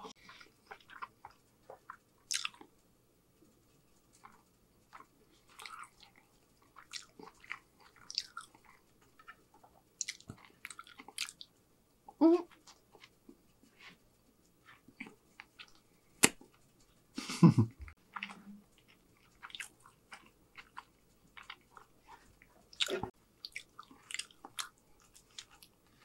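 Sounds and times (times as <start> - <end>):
wet chewing clicks and smacks: 0.3 - 2.7, 4.1 - 11.6, 17.9 - 25.8.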